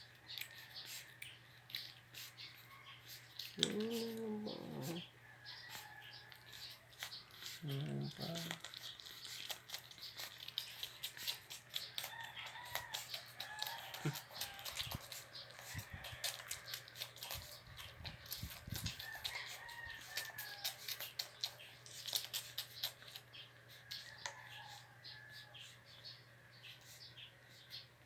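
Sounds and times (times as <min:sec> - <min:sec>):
puppies whimpering: 0:03.4 - 0:05.1, 0:07.0 - 0:09.2.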